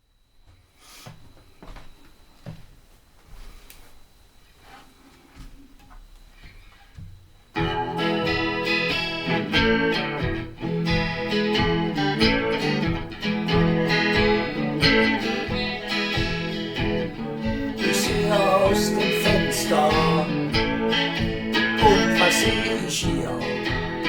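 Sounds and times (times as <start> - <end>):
blues guitar: 6.4 - 24.0.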